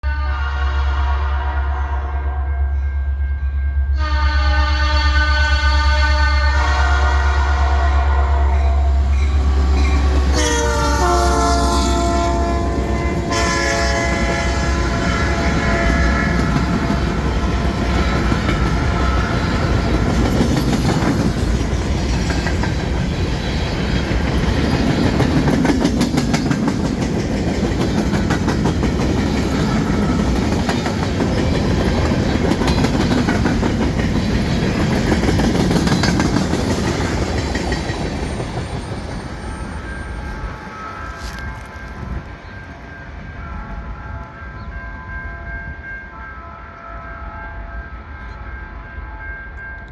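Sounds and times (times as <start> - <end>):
train horn: 0.0 - 21.4, 28.0 - 31.0, 39.1 - 49.9
locomotive engines rumbling: 3.5 - 45.8
train wheels clicking over rail joints: 15.3 - 40.4.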